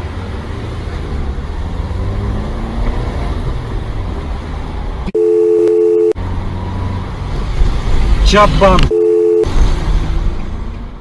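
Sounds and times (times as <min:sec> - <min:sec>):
car road rumble: 0:00.0 - 0:11.0
two-tone electronic beep: 0:05.1 - 0:06.2, 0:08.9 - 0:09.5.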